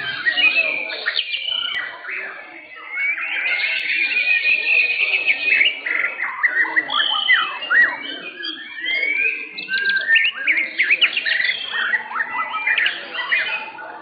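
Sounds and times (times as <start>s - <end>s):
songbirds singing: 0.0s - 14.0s.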